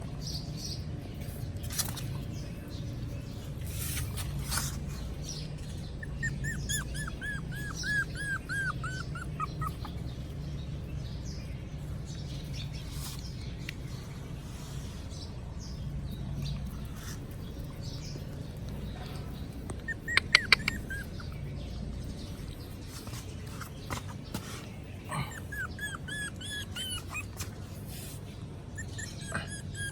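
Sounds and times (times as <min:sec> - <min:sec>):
faint squeaks and clicks: 0:00.6 - 0:10.4, 0:12.0 - 0:29.9
puppy whimpering: 0:06.0 - 0:10.3, 0:19.7 - 0:21.5, 0:25.1 - 0:27.6, 0:28.7 - 0:29.9.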